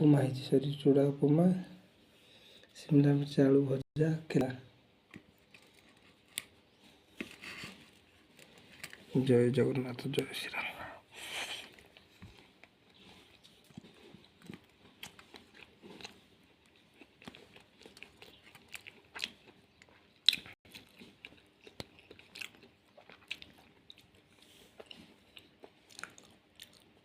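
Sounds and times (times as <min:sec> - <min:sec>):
person chewing and crunching food: 0:05.1 - 0:09.2, 0:11.4 - 0:27.0.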